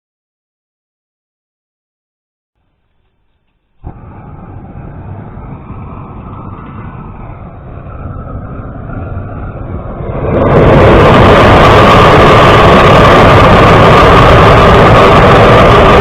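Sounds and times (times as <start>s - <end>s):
vehicle engine rumbling: 2.6s - 14.6s.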